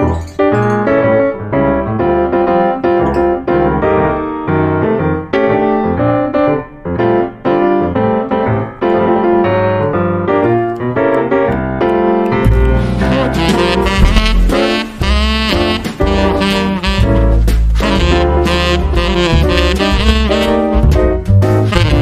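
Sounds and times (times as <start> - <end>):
piano melody: 0.0 - 22.0
bass line: 12.4 - 22.0.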